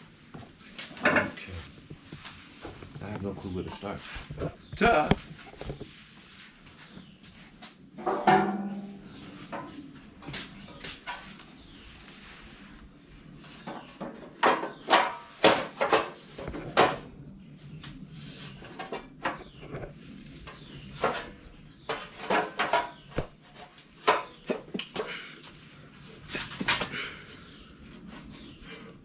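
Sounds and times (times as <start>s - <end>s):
hard objects clattering: 20.6s - 25.4s.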